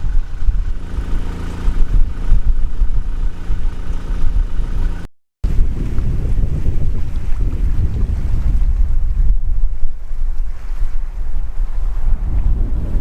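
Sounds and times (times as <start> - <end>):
engine running: 0.0 - 13.0
wind rumble on microphone: 0.0 - 13.0.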